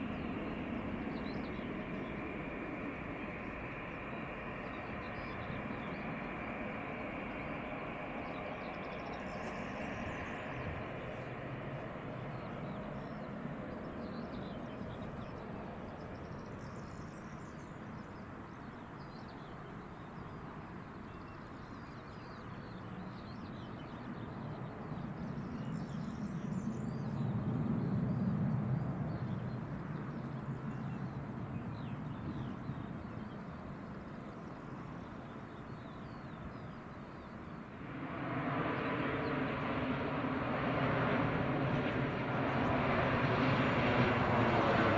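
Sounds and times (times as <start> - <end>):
distant low rumble: 0.0 - 17.6
small birds chirping: 0.0 - 37.6
aircraft engines whining: 0.0 - 44.9.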